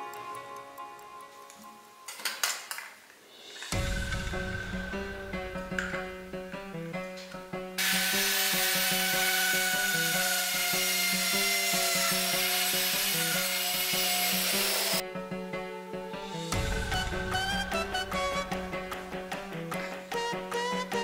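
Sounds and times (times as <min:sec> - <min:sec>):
background music with beat: 0:00.0 - 0:02.1, 0:03.4 - 0:07.9, 0:15.0 - 0:21.0
loud rasping tool: 0:07.8 - 0:15.0.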